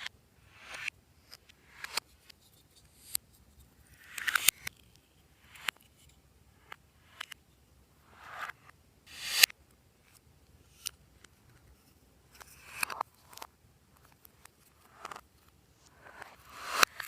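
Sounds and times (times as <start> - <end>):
small clicks: 3.9 - 7.4.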